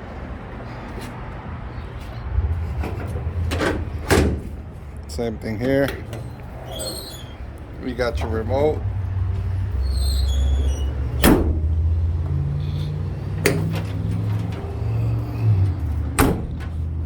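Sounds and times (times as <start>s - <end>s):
truck engine droning: 0.0s - 17.0s
higher motor hum: 1.5s - 6.6s.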